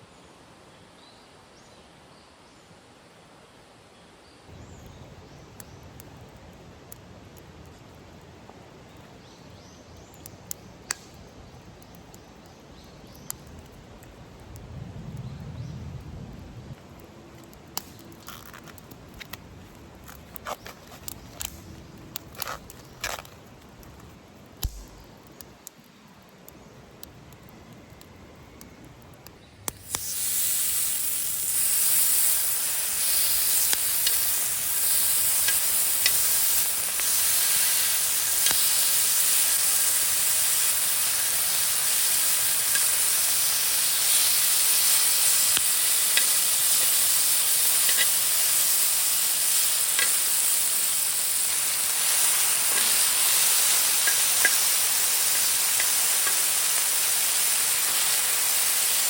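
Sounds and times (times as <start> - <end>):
food sizzling in hot pan: 29.7 - 59.0.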